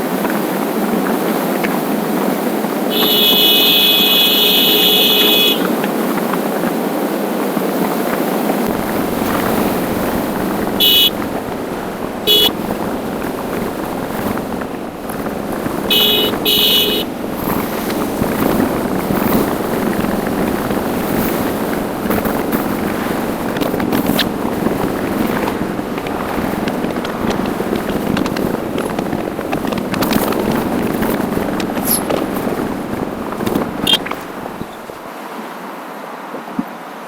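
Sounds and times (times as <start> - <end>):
wind and road noise: 0.0 - 37.0
vehicle horn: 2.9 - 5.8, 8.7 - 22.2.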